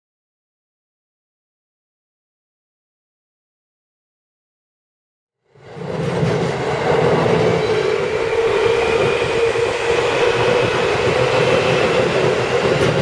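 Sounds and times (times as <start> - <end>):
train wheels rumbling on bridge: 5.6 - 13.0.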